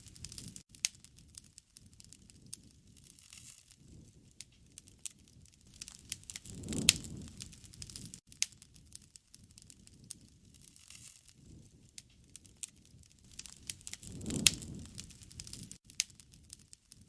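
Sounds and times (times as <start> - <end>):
bonfire crackling and popping: 0.0 - 17.0
low rumble: 13.9 - 15.6.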